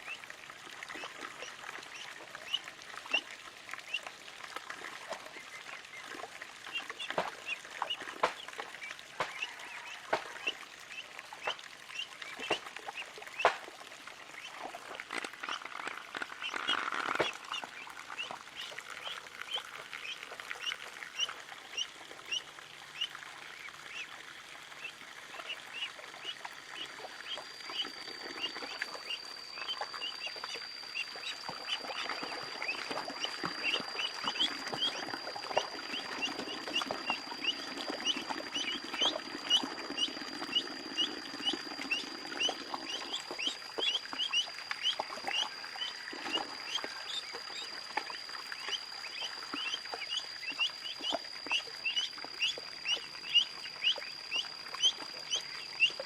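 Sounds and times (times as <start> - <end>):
ducklings peeping: 0.9 - 3.2, 6.7 - 13.6, 14.4 - 24.1, 24.8 - 56.0
steady high-pitched tone: 25.4 - 56.0.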